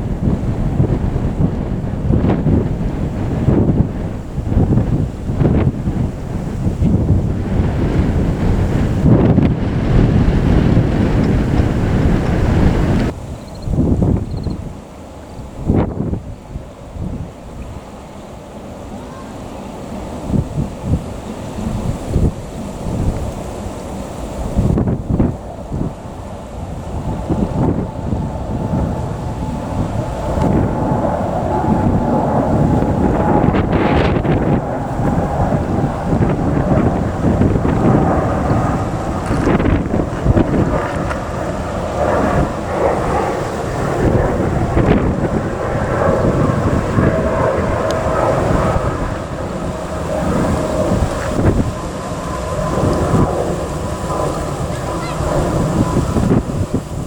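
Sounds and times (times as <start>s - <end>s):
jet engine rumble: 0.0s - 57.0s
wind buffeting microphone: 0.0s - 57.0s.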